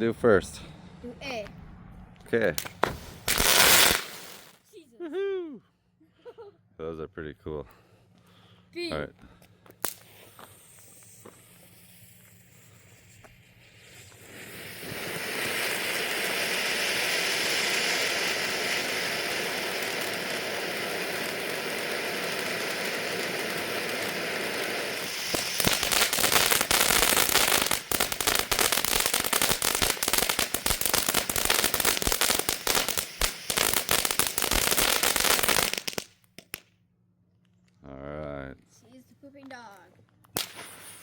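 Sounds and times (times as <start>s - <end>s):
firework fountain crackling: 2.6s - 4.6s, 9.8s - 36.6s, 40.4s - 41.0s
firework fountain hissing: 2.6s - 4.6s, 9.8s - 36.6s, 40.4s - 41.0s.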